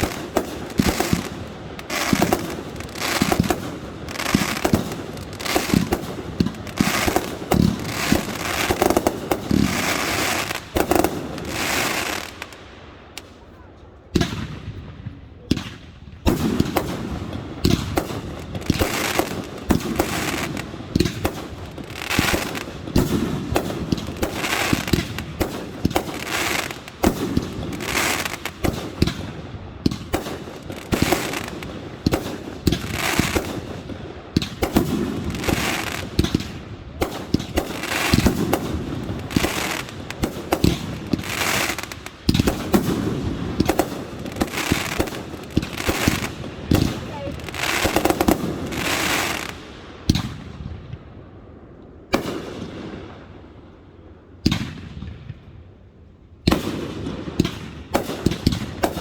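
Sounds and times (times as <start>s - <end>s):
fireworks bangs: 0.0s - 51.1s
fireworks crackling bursts: 0.0s - 51.1s, 56.4s - 59.0s.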